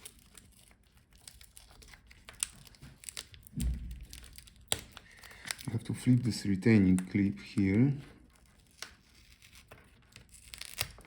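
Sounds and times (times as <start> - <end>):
plastic parts crinkling and clicking: 0.0 - 11.0
short low thump: 3.6 - 4.2.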